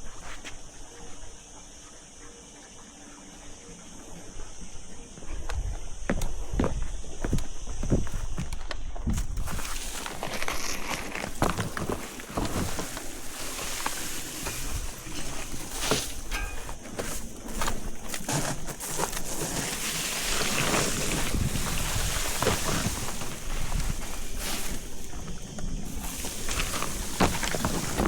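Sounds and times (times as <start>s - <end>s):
rustling: 5.3s - 28.0s
wind buffeting microphone: 20.0s - 28.0s.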